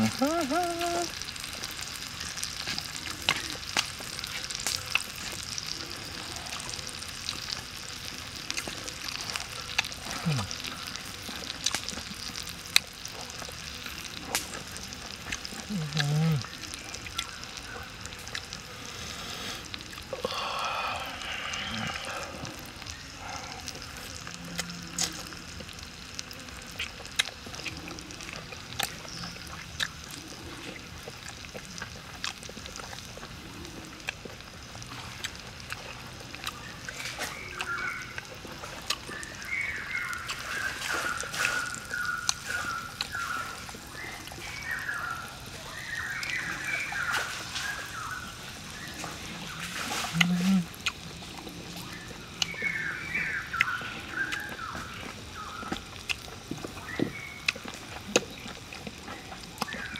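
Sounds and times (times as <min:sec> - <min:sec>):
outdoor hiss: 0:00.0 - 0:58.8
wet chewing: 0:00.0 - 0:59.9
mouth clicks: 0:08.5 - 0:10.8, 0:15.2 - 0:17.4, 0:41.4 - 0:43.7, 0:50.0 - 0:56.3.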